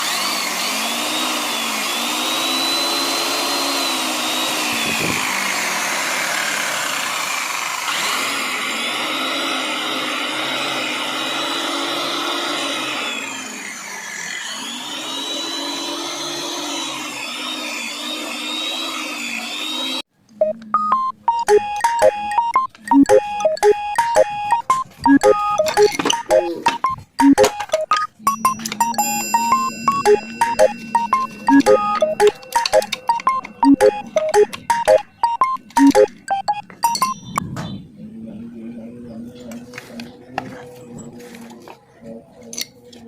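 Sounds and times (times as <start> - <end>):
power saw motor whining: 0.0 - 20.1, 23.8 - 37.2
short music notes: 20.7 - 37.2.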